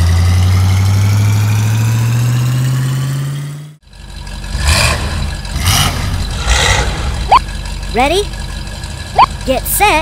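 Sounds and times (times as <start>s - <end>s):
cartoon race car engine: 0.0s - 10.0s
engines idling with noisy blips: 3.8s - 6.4s, 7.0s - 10.0s.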